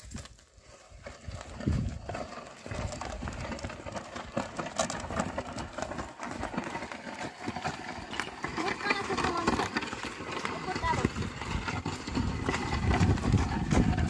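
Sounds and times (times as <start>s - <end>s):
oxen hooves clopping: 0.0s - 14.0s.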